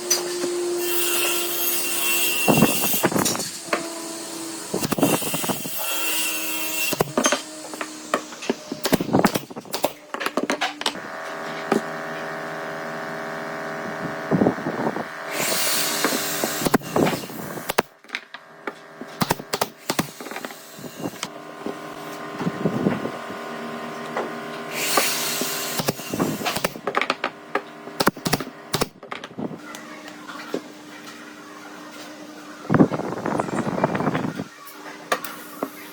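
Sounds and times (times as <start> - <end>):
electric tool motor running: 0.0 - 10.0, 10.9 - 17.9, 18.7 - 28.8
cutting or sanding noise: 0.2 - 9.9, 15.3 - 17.9, 19.2 - 21.3, 24.7 - 26.8.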